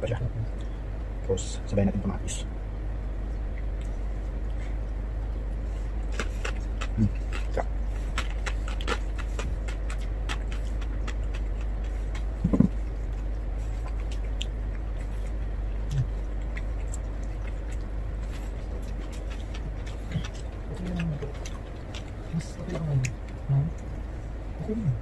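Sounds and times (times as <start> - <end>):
steady low hum: 0.0 - 25.0
person chewing crispy pork: 3.7 - 24.5
sharp crunchy clicks: 6.0 - 24.0.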